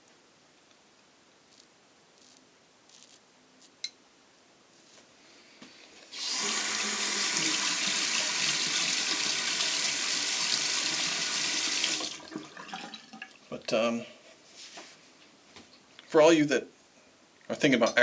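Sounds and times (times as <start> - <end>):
tap water running into sink: 6.1 - 13.4.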